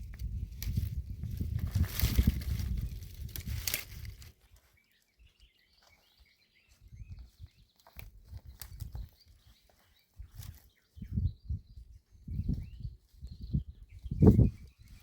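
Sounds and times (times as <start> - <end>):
faint bird chirps: 4.2 - 15.0.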